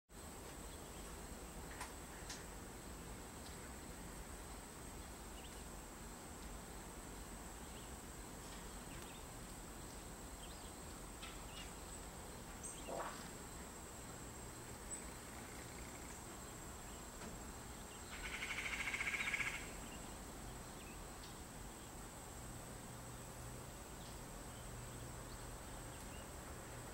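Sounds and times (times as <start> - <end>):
high-pitched insect trill: 17.7 - 20.2.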